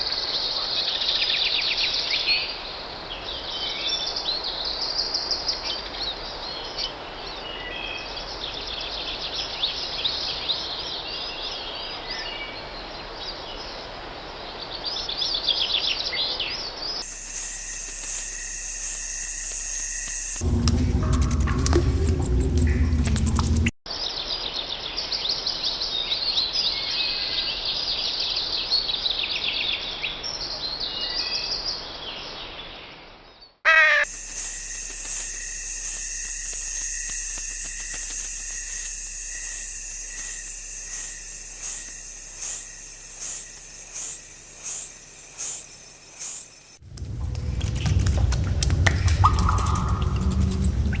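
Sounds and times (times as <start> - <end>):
high insect drone: 17.0 - 23.7, 33.7 - 51.0
forest birds chirping: 33.4 - 51.0
repeating call: 33.7 - 46.5.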